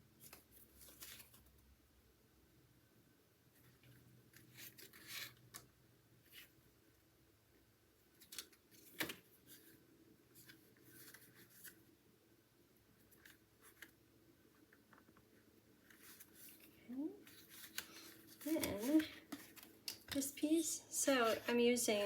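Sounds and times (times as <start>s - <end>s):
paper rustling and scraping: 0.2s - 1.5s, 3.6s - 5.4s, 8.2s - 11.8s, 15.8s - 19.8s.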